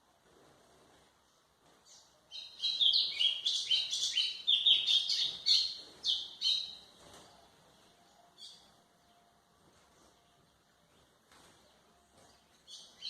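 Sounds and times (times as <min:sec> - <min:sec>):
bird singing high whistled notes: 0:02.3 - 0:06.8.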